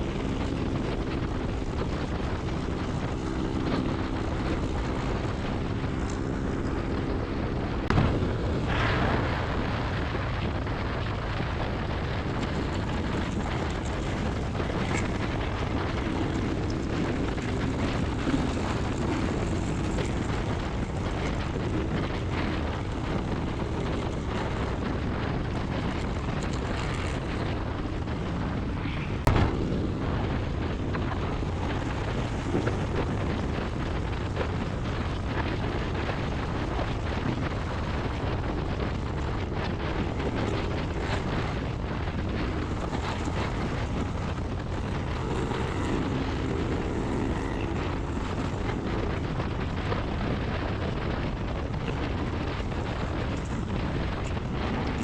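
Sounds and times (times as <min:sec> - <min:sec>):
motorcycle engine running: 0:00.0 - 0:55.0
wind on microphone: 0:00.0 - 0:55.0.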